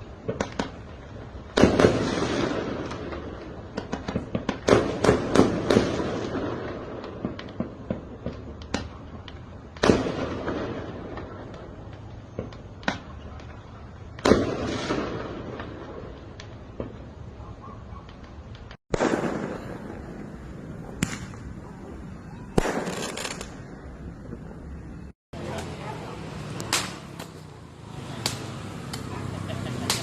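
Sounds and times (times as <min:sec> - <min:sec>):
firecrackers banging: 0:00.0 - 0:17.2, 0:18.2 - 0:30.0
firework pops: 0:00.2 - 0:00.8, 0:01.5 - 0:17.1, 0:18.0 - 0:21.5, 0:22.5 - 0:24.5, 0:26.4 - 0:27.5, 0:28.1 - 0:29.1
loud firework booms: 0:01.5 - 0:08.9, 0:09.7 - 0:13.2, 0:14.1 - 0:17.1, 0:18.9 - 0:25.5.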